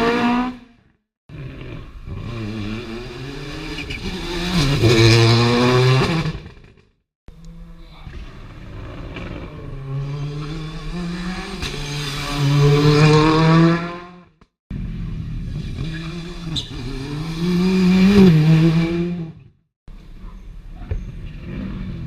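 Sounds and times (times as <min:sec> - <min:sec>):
rally car engine passing: 0:01.3 - 0:06.5, 0:07.6 - 0:19.4.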